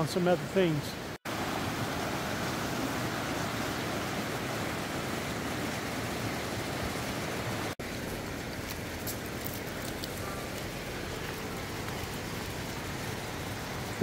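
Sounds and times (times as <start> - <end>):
water rushing below waterfall: 0.0 - 9.0.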